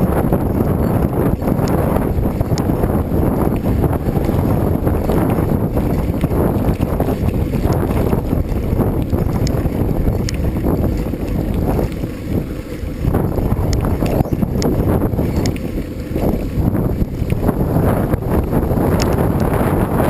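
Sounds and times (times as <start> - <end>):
wind buffeting microphone: 0.0 - 20.0
faint ticks: 2.4 - 2.7, 9.0 - 12.1, 13.2 - 16.3.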